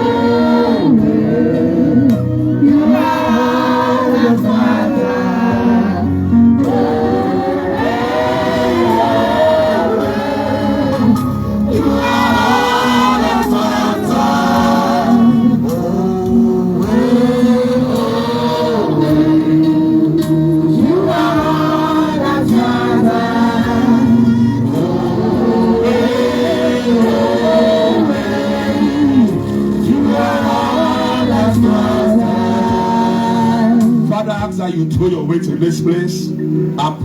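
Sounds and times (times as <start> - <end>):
choir singing: 0.0 - 34.3
sustained musical backing: 0.0 - 37.0.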